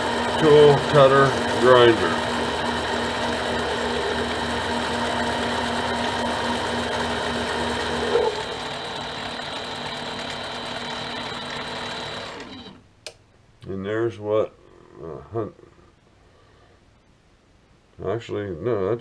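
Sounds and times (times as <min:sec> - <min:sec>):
lathe machine hum: 0:00.0 - 0:12.8.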